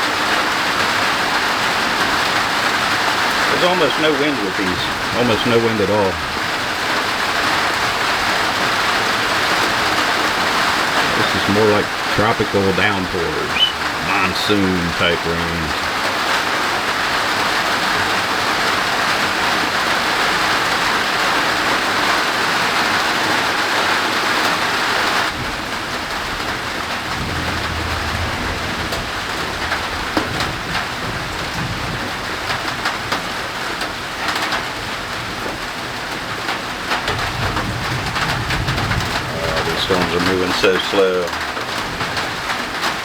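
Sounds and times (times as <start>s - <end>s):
heavy rain: 0.0s - 43.0s
distant thunder rumbling: 2.6s - 16.3s, 25.4s - 33.1s.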